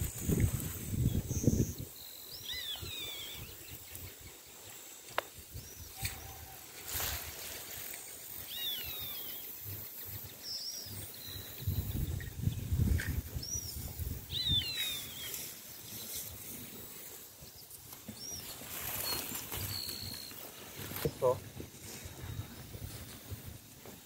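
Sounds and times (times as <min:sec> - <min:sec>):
low rumble on microphone: 0:11.6 - 0:14.7.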